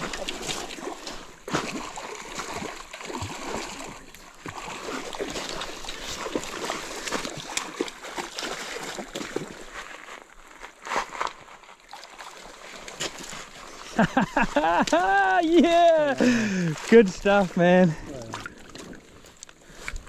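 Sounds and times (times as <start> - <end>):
water splashing: 0.0 - 10.2, 11.8 - 20.0
river rushing: 14.3 - 18.2.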